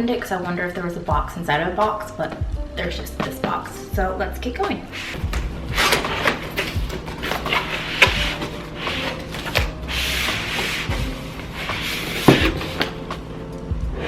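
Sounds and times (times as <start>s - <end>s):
cardboard scraping and rubbing: 4.9s - 13.0s.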